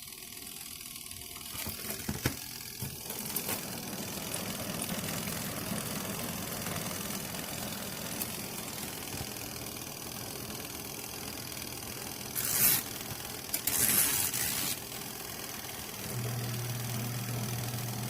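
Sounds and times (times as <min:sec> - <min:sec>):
electric motor humming: 0:15.7 - 0:18.0.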